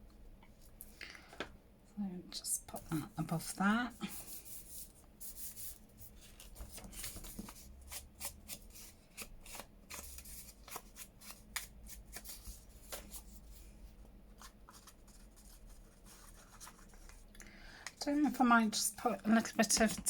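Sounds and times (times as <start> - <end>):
paper rustling: 5.6 - 13.7.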